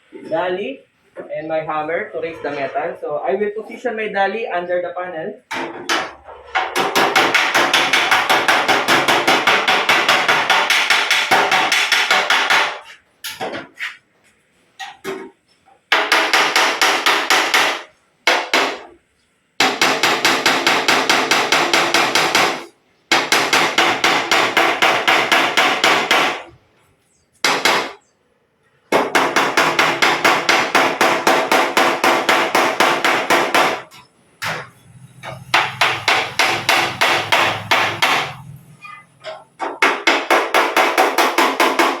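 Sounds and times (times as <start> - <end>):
hammer tapping steel panel: 5.5 - 13.7.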